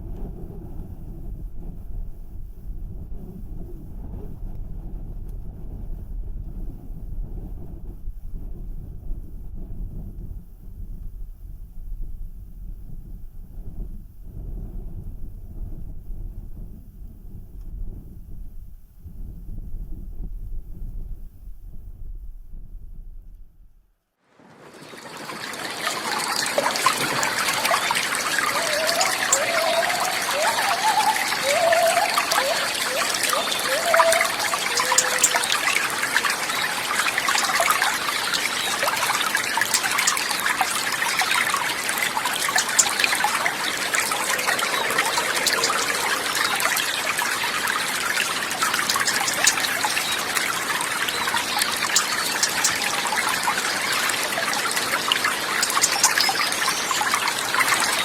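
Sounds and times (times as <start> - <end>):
water trickling and babbling: 24.4 - 58.0.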